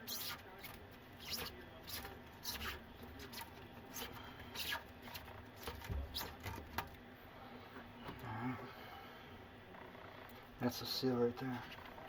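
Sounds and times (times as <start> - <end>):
scrapes and rustles of plumbing parts: 0.0 - 7.0.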